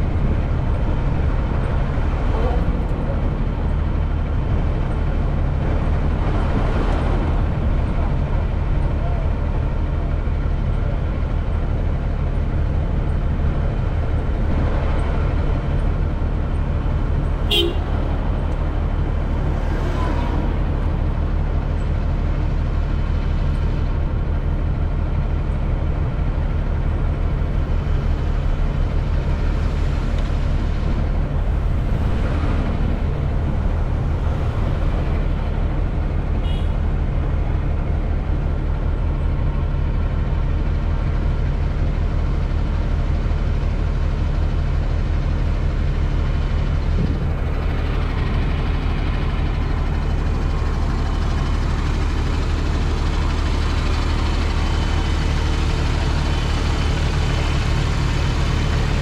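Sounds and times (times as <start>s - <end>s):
road machinery: 0.0s - 59.0s
vehicle engines idling and passing: 0.0s - 59.0s
vehicle horn toot: 17.4s - 18.0s, 36.4s - 36.8s.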